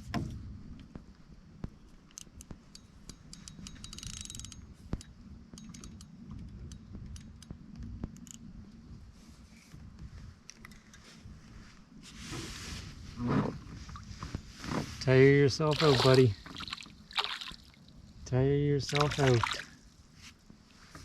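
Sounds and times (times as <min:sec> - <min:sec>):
fishing reel clicking: 0:03.1 - 0:04.6.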